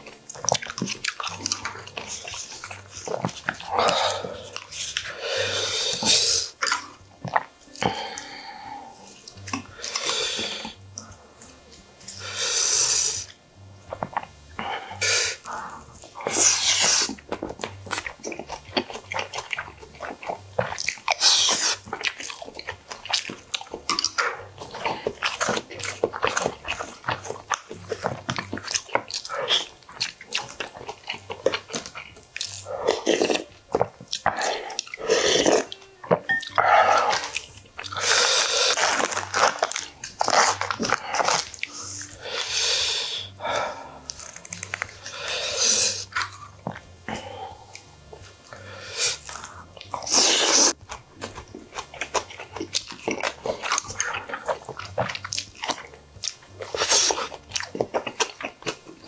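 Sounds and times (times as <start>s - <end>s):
man chewing food: 0.0s - 59.0s
wet mouth clicks and smacks: 44.1s - 45.1s.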